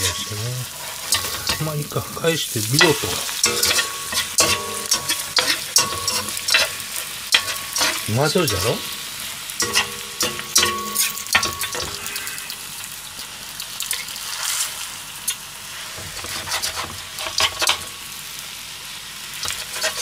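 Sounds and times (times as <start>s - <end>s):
metal spatulas scraping a pan: 0.0s - 1.8s, 2.8s - 9.0s, 9.6s - 12.5s, 16.0s - 17.9s, 19.4s - 20.0s
food sizzling in a frying pan: 0.0s - 20.0s.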